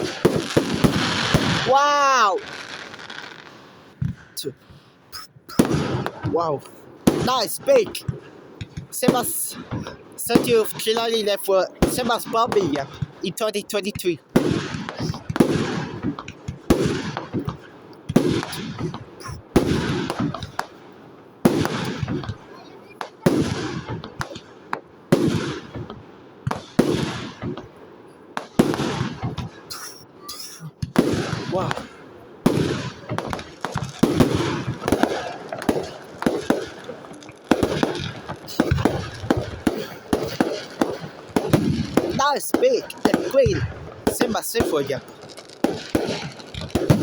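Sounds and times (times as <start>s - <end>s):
firework shells bursting: 0.0s - 4.2s, 28.4s - 47.0s
fireworks bursting: 0.0s - 47.0s.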